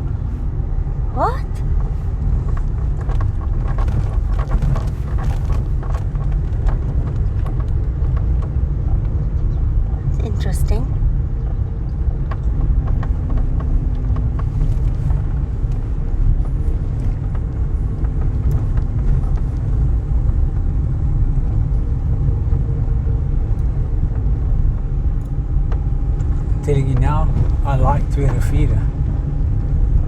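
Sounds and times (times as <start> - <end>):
car driving at low speed: 0.0 - 30.0
light ticks and rattles: 1.9 - 20.8.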